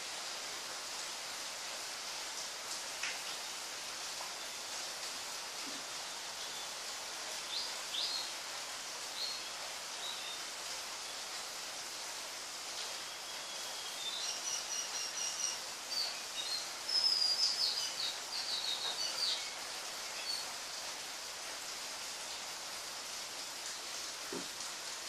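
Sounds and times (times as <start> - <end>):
steady background hiss: 0.0 - 25.0
bird chirping: 13.4 - 19.6.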